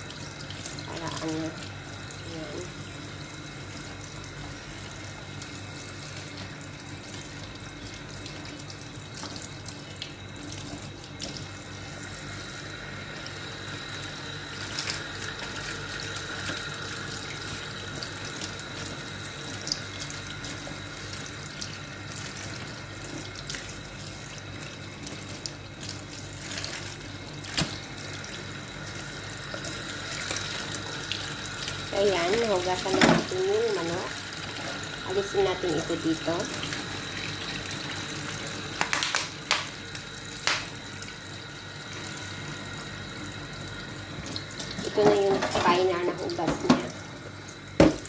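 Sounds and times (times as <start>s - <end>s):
water splashing off meat: 14.5s - 28.5s
tap running into sink: 32.3s - 33.9s, 38.8s - 39.8s, 40.4s - 40.8s, 44.2s - 48.0s.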